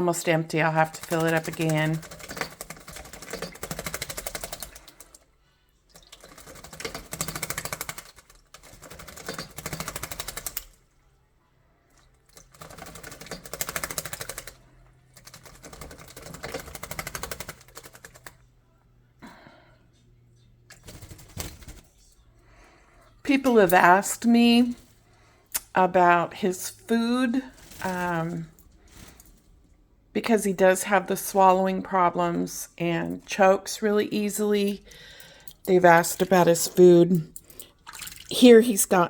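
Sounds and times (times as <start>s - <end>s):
bird wings fluttering in water: 1.0s - 5.2s, 6.0s - 10.6s, 12.4s - 14.6s, 15.2s - 18.4s, 20.7s - 21.8s.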